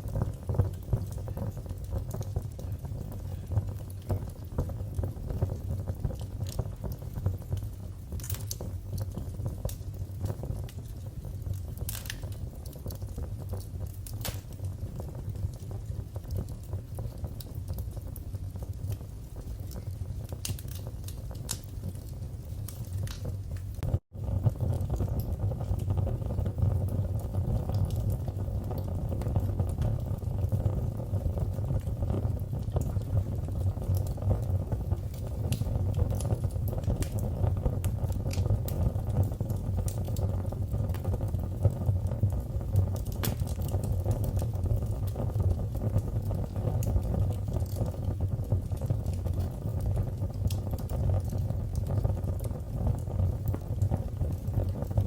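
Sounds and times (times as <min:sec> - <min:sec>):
fire popping and snapping: 0:00.0 - 0:55.0
wood fire crackling: 0:00.0 - 0:55.0.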